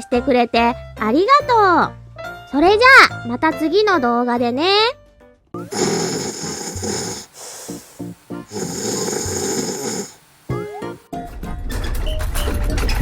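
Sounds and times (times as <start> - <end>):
cartoonish snoring: 5.6 - 10.7.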